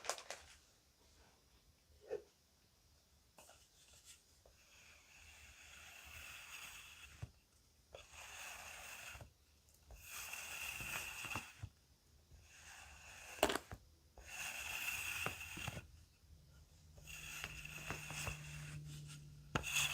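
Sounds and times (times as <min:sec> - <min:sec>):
plastic bag rustling: 0:00.0 - 0:00.6.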